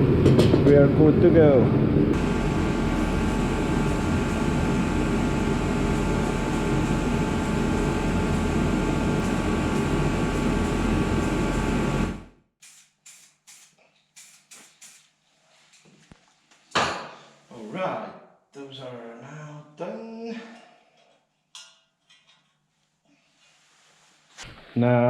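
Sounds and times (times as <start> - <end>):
loud machine rumble: 0.0 - 12.3
faint hissing spurts: 12.6 - 15.9.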